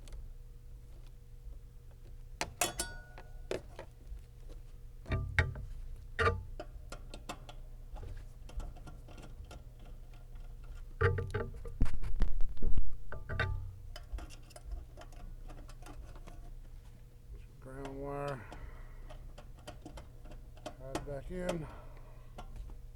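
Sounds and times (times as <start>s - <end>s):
low steady hum: 0.0s - 22.9s
hand tools clinking on metal: 2.6s - 3.3s.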